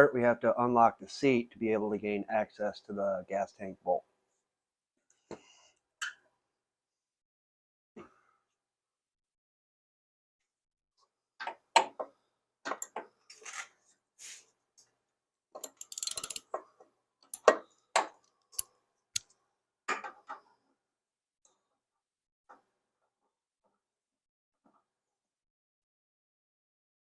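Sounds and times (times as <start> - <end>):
key clicking in a lock: 15.6 - 16.4.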